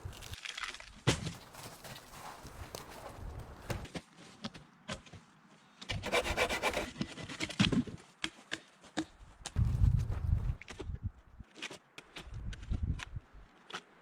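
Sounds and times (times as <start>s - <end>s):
scraping wood: 6.0s - 7.4s.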